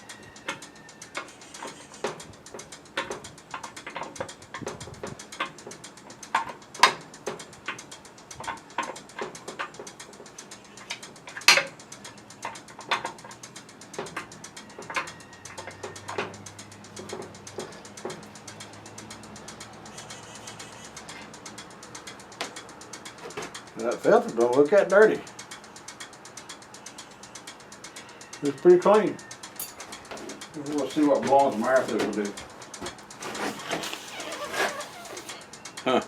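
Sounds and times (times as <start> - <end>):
tools and plastic parts clicking: 0.0 - 24.7.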